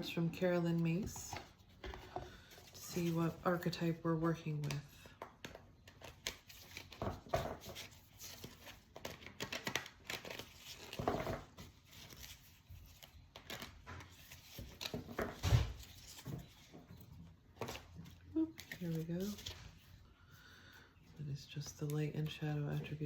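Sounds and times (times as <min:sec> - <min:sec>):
cards being shuffled: 0:04.5 - 0:16.8, 0:17.6 - 0:19.9.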